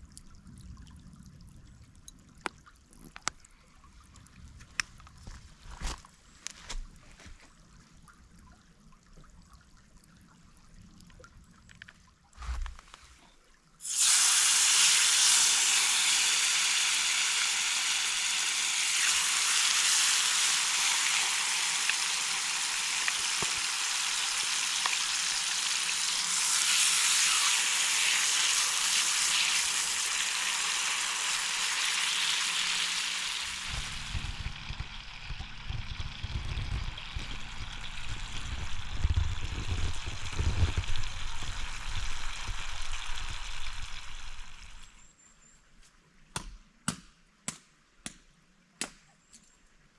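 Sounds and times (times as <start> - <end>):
food sizzling in a pan: 13.8 - 35.3, 36.8 - 44.8
uneven low rumble: 33.6 - 44.5.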